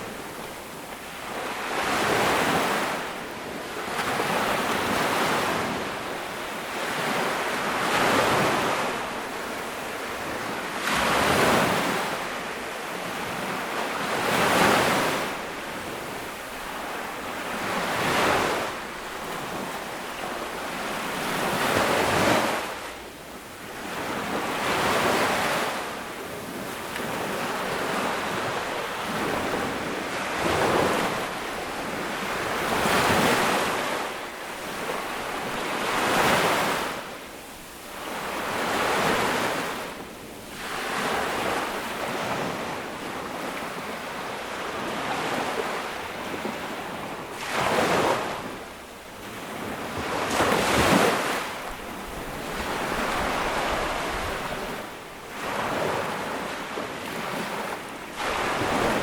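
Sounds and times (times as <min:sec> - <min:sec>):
ocean waves breaking: 0:23.8 - 0:59.0.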